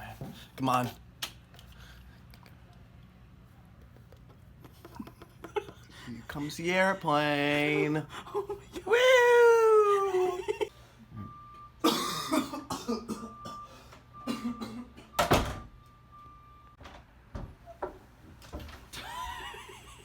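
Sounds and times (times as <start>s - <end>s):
person coughing: 11.8s - 15.2s.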